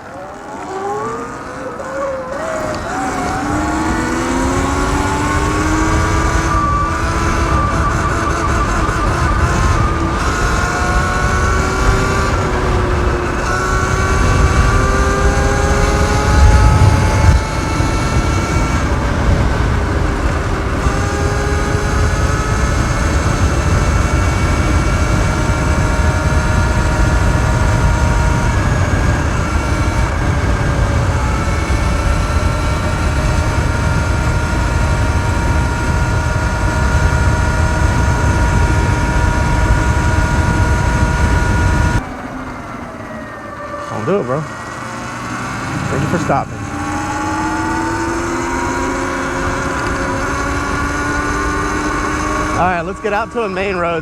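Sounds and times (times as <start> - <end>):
electric motor whine: 0.0 - 54.0
wind noise on microphone: 2.4 - 42.1.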